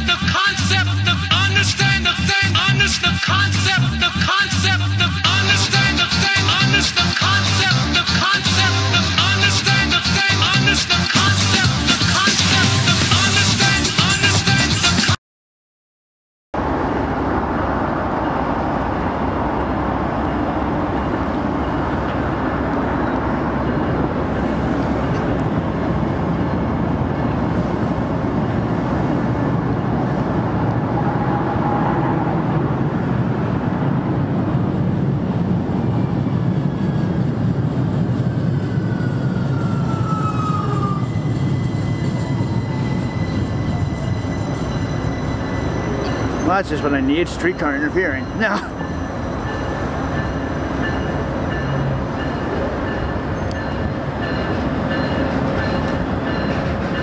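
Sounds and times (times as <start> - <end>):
diesel locomotive rumbling: 0.0 - 15.1, 16.6 - 57.0
thin squeals sliding in pitch: 39.7 - 47.0.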